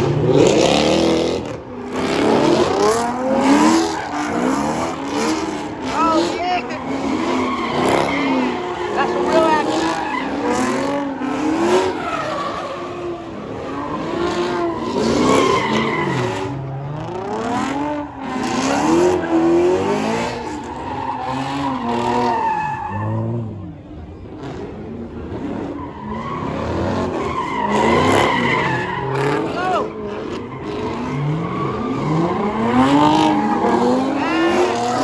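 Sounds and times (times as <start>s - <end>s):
car engine revving: 0.0s - 35.0s
tires squealing on pavement: 0.0s - 35.0s.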